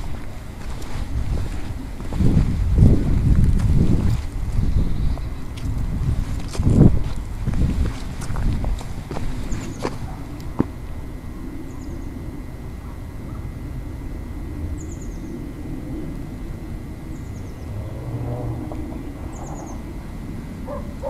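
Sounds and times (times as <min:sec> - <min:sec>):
steady low rumble: 0:00.0 - 0:21.0
small bird calling: 0:11.6 - 0:12.2, 0:14.7 - 0:15.6, 0:17.0 - 0:20.0.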